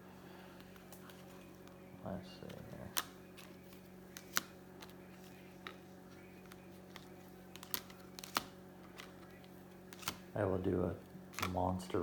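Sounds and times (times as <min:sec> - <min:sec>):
low steady hum: 0:00.0 - 0:12.0
cards clicking and tapping: 0:02.4 - 0:05.8, 0:06.4 - 0:10.2, 0:11.3 - 0:11.6.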